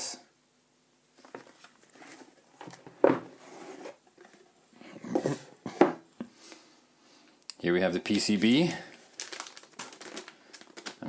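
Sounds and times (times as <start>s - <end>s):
packaging rustling: 8.0s - 11.0s.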